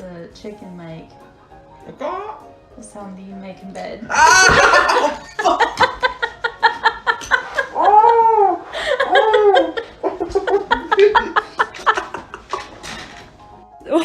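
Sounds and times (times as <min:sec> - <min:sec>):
person laughing: 0:04.1 - 0:12.7.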